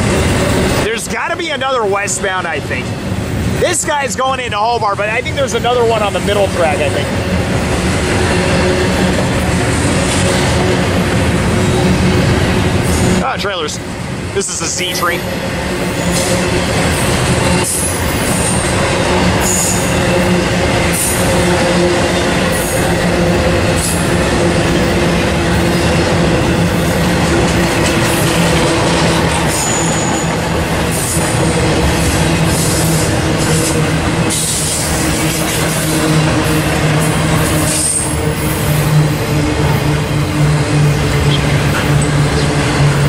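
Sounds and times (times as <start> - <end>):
freight train wheels roaring: 0.0 - 43.0
high-pitched wheel squeals: 29.5 - 30.3.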